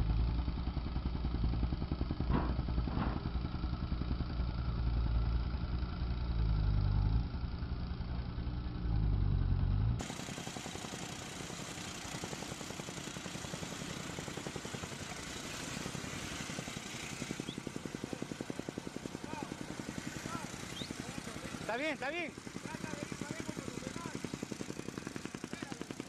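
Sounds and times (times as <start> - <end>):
jackhammer hammering: 1.3 - 3.7, 10.0 - 26.0.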